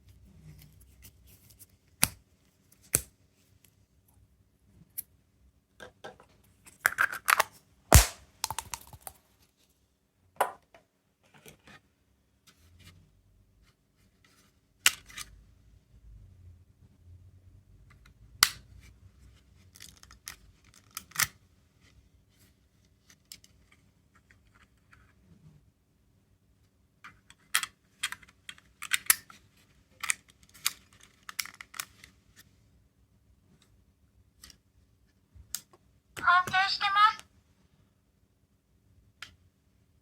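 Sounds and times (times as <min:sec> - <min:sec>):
plastic capsule toys clicking: 0:06.9 - 0:09.2.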